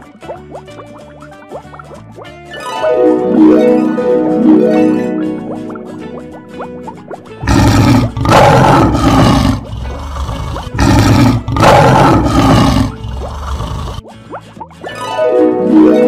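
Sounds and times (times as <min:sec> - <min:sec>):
faint plucked music: 0:00.0 - 0:16.0
lion roaring: 0:07.4 - 0:14.0.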